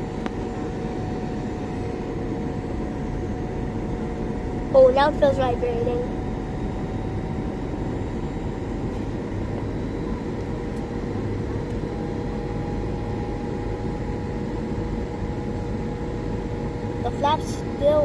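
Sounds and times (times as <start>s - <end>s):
faint steady engine tones: 0.0s - 18.0s.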